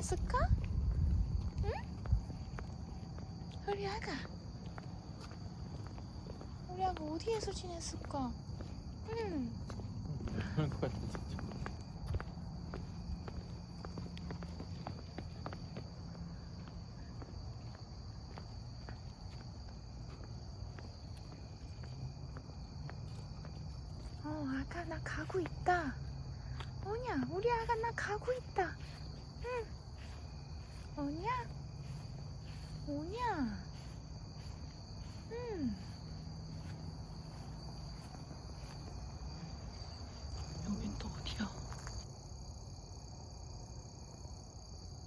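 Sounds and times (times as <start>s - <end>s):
crickets chirring: 0.0s - 45.0s
insects trilling: 0.0s - 45.0s
footsteps through grass: 27.5s - 39.4s.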